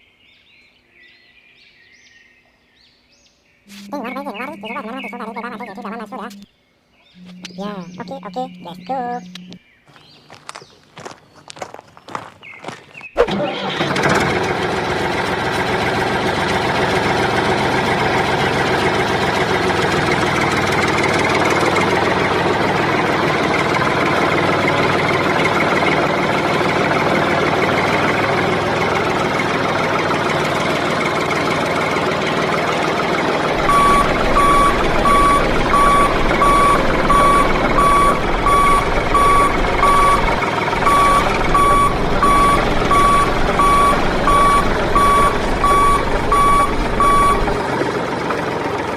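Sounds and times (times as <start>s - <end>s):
reversing alarm beeping: 7.2s - 9.6s, 33.6s - 47.6s
machine motor running: 7.2s - 48.9s.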